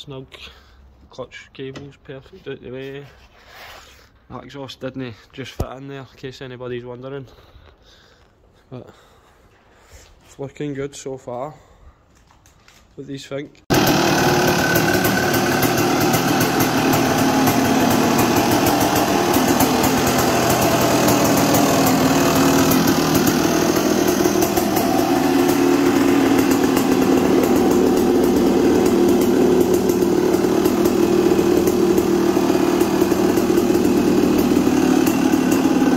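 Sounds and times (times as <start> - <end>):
two-stroke engine running: 13.7 - 35.9.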